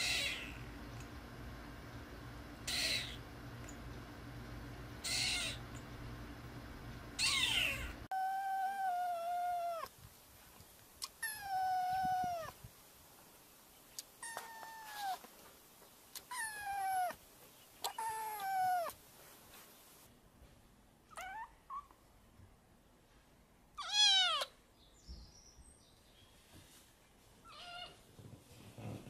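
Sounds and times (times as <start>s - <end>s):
kittens meowing: 0.0s - 0.6s, 2.6s - 3.2s, 5.0s - 5.7s, 7.2s - 9.9s, 11.0s - 12.6s, 14.2s - 15.3s, 17.8s - 19.0s.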